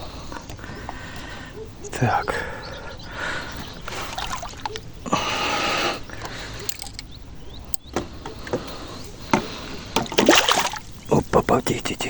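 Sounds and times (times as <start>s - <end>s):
small splashes and clicks: 3.5s - 4.9s, 6.2s - 11.3s
fish splashing in water: 3.6s - 4.9s, 9.9s - 11.2s.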